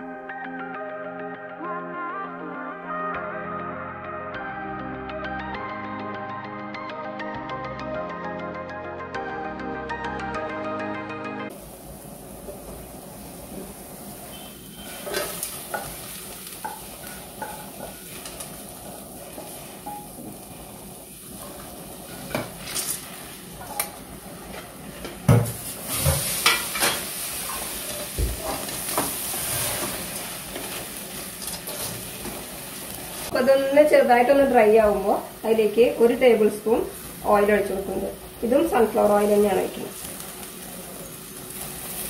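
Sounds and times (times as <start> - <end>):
vegetables sizzling in a pan: 11.5 - 42.0
wooden spatula scraping a pan: 14.3 - 16.0, 25.9 - 32.4.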